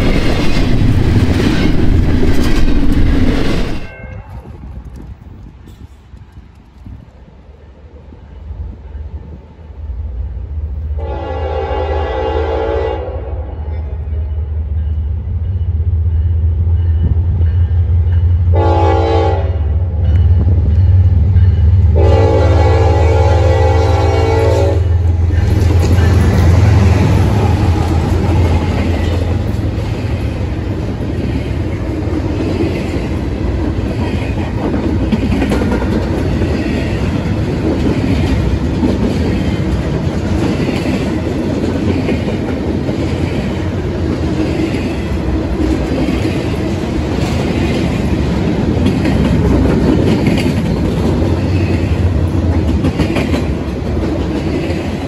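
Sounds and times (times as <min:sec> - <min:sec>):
train wheels on rails: 0:00.0 - 0:12.9, 0:13.8 - 0:55.0
locomotive air horn: 0:11.0 - 0:13.8, 0:18.5 - 0:19.7, 0:21.9 - 0:25.0
wheels clacking over rail joints: 0:25.2 - 0:55.0.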